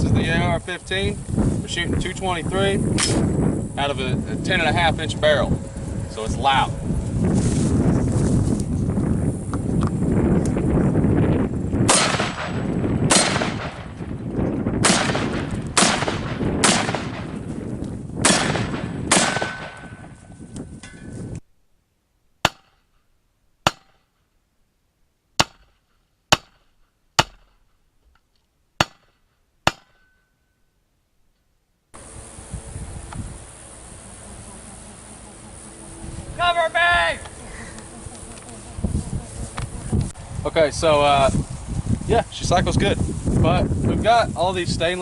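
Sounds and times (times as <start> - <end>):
short dry gunshot cracks: 11.9 - 13.9, 14.8 - 17.3, 18.2 - 19.8
gunshots with ringing tail: 11.9 - 14.0, 14.8 - 17.4, 18.2 - 20.1.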